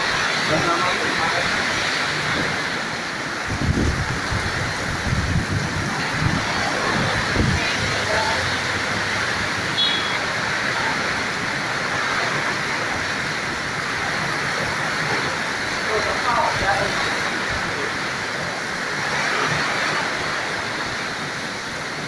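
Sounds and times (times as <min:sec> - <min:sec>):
strong wind rushing: 0:01.5 - 0:09.8
wind buffeting microphone: 0:03.4 - 0:09.6.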